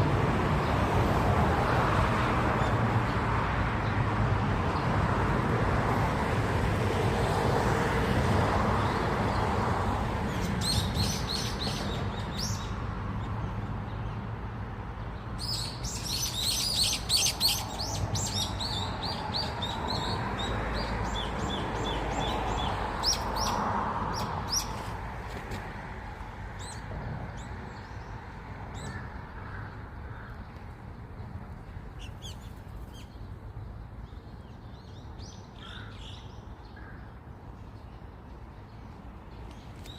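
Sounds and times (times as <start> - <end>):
small birds chirping: 15.2 - 25.0, 30.1 - 36.9.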